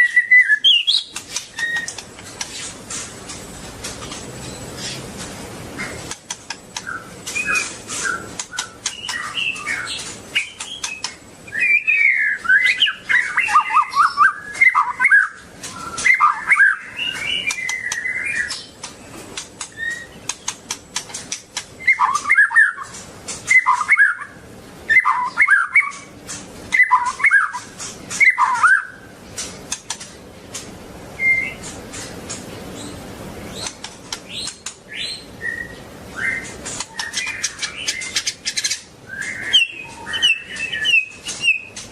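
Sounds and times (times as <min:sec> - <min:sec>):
songbird warbling: 0:00.0 - 0:02.7, 0:05.8 - 0:30.1, 0:31.2 - 0:41.9
sharp clicks: 0:17.5 - 0:21.8, 0:33.6 - 0:34.8.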